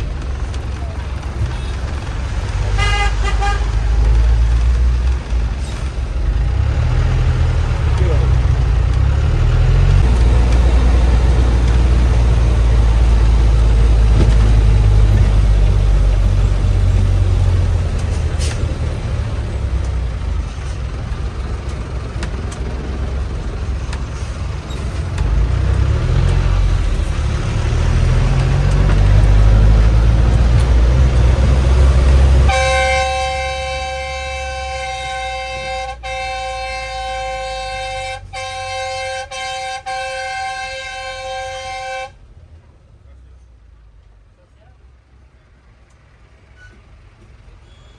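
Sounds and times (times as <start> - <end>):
bus engine rumbling: 0.0 - 47.9
sustained horn-like tone: 32.4 - 42.2.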